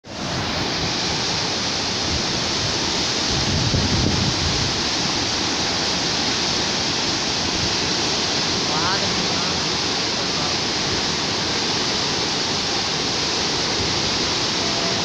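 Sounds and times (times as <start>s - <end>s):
whitewater river rushing: 0.0s - 15.0s
wind buffeting microphone: 0.1s - 8.5s.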